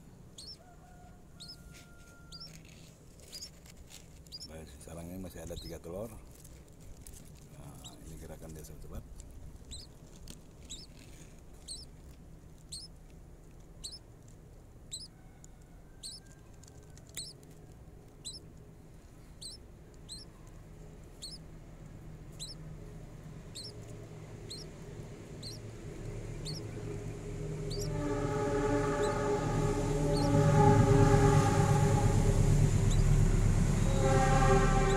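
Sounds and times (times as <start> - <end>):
nestling bird cheeping: 0.4 - 0.6, 1.4 - 1.6, 2.2 - 2.6, 3.3 - 3.5, 4.3 - 4.5, 9.7 - 9.9, 10.7 - 11.0, 11.6 - 11.9, 12.7 - 12.9, 13.8 - 14.0, 14.9 - 15.2, 16.0 - 16.2, 17.1 - 17.4, 18.2 - 18.5, 19.3 - 20.3, 21.2 - 21.4, 22.4 - 22.6, 23.5 - 23.8, 24.4 - 24.7, 25.4 - 25.6, 26.4 - 26.8, 27.6 - 31.1, 32.8 - 33.2
horn-like chord: 26.2 - 34.9.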